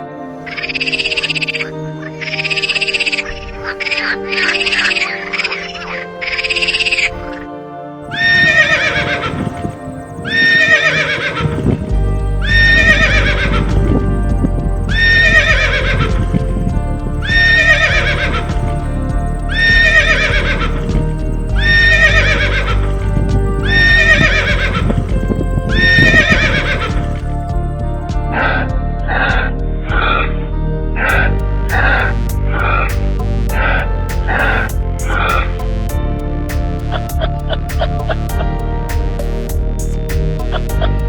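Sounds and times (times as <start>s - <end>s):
background music: 0.0s - 41.0s
horse whinnying: 8.1s - 27.4s.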